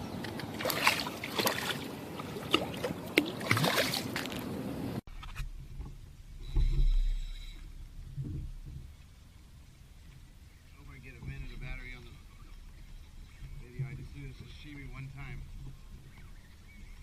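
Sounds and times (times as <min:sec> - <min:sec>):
water splashing and sloshing: 0:00.0 - 0:17.0
low rumble: 0:05.0 - 0:17.0.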